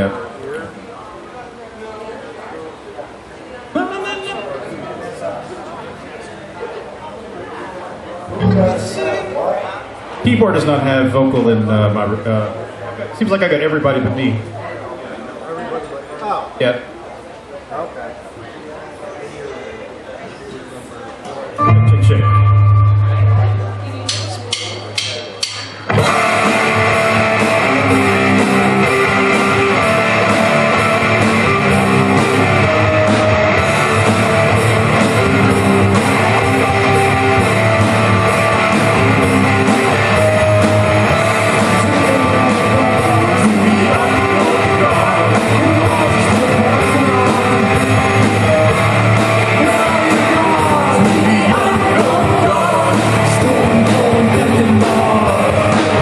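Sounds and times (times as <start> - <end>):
live rock band playing: 8.3 - 9.3, 21.6 - 56.0
drums keeping a steady beat: 21.6 - 56.0.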